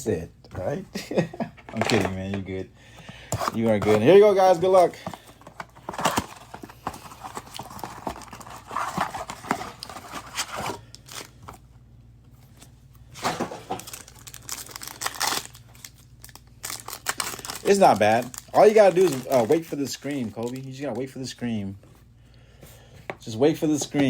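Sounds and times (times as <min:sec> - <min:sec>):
packaging crinkling: 0:03.3 - 0:11.6, 0:13.2 - 0:21.1.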